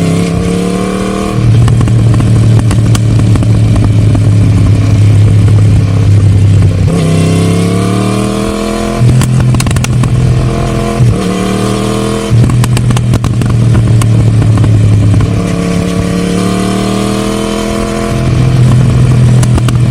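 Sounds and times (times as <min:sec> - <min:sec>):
motorcycle engine accelerating: 0:00.0 - 0:19.9
sharp exhaust cracks: 0:09.0 - 0:10.4.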